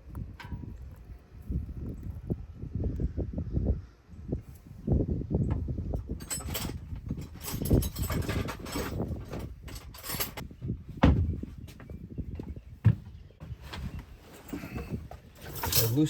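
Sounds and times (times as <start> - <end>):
hand tools knocking and scraping: 5.5 - 16.0.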